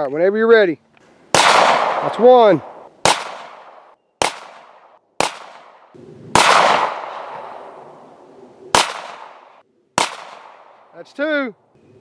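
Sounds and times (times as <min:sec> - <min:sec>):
pistol shots with echo: 0:01.3 - 0:07.8, 0:08.7 - 0:10.9.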